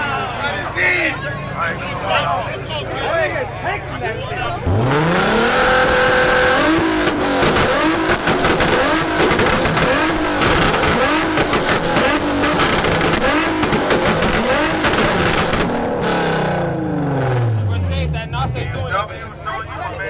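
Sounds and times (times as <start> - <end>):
car engine bouncing on rev limiter: 4.4 - 19.0
exhaust pops and bangs: 4.6 - 19.0.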